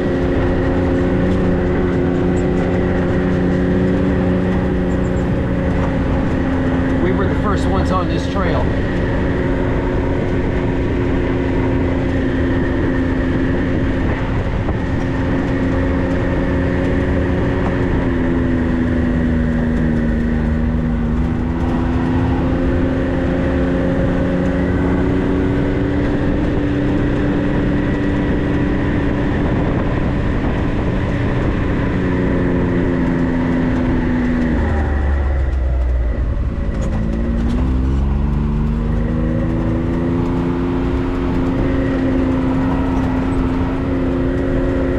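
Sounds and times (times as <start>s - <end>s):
off-road vehicle engine driving: 0.0s - 44.9s.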